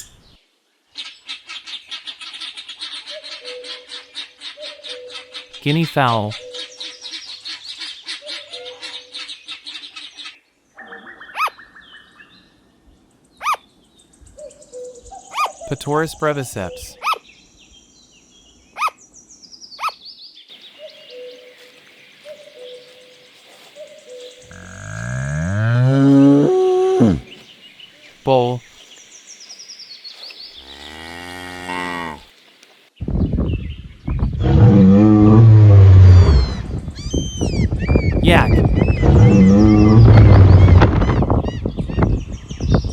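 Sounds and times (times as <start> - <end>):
bull bellowing: 24.5 - 27.4, 30.6 - 32.3, 34.4 - 36.6, 39.0 - 40.8.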